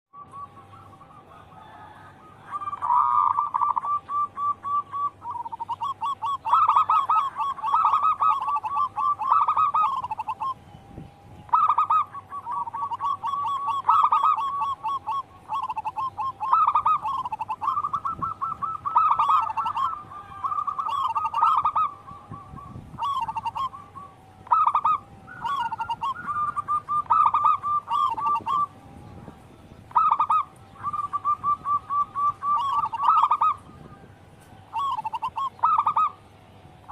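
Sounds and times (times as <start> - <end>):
dove cooing: 0.1 - 36.9.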